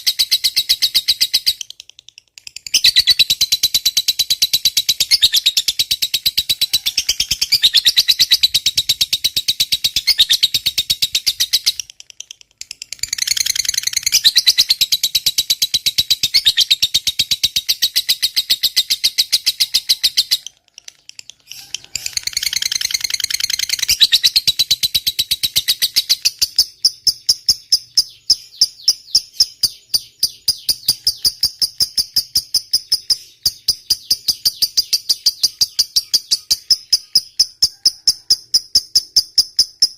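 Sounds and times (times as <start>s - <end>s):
lovebird high-pitched trill: 12.9s - 39.9s.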